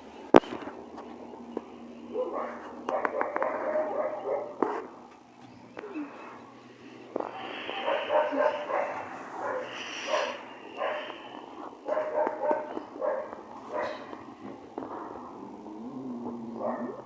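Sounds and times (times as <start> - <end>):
dog barking: 2.1 - 4.9, 7.6 - 14.2, 16.6 - 17.0.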